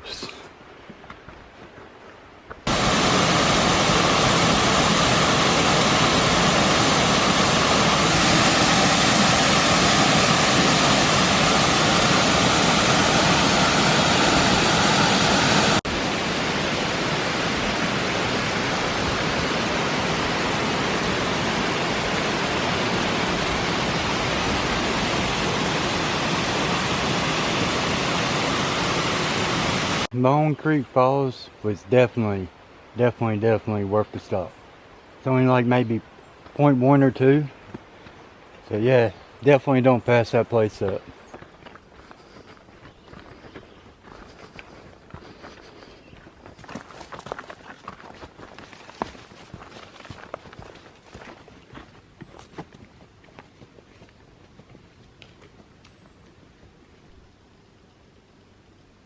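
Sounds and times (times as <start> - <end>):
waterfall roaring: 2.7 - 30.1.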